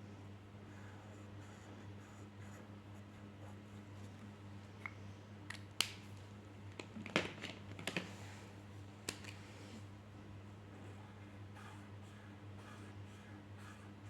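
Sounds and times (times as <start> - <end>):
low electrical hum: 0.0 - 14.0
pen scratching on paper: 11.6 - 13.9.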